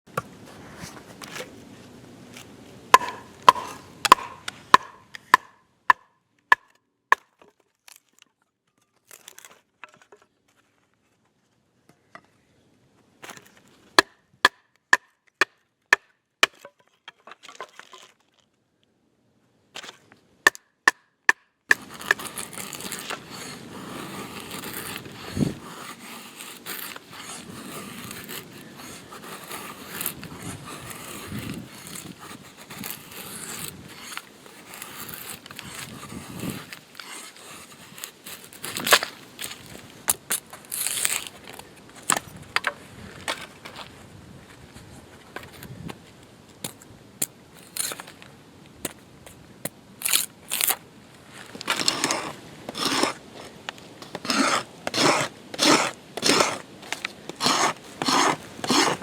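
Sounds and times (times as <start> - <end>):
wood being chopped: 2.9 - 7.5, 14.0 - 16.7, 20.5 - 23.2.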